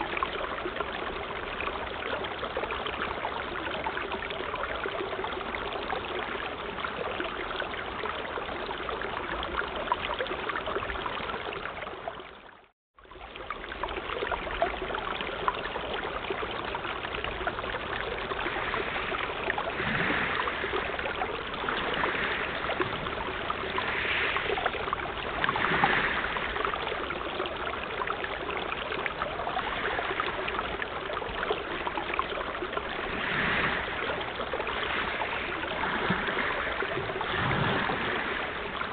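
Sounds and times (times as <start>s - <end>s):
sea waves washing: 17.3s - 28.2s, 29.1s - 38.9s.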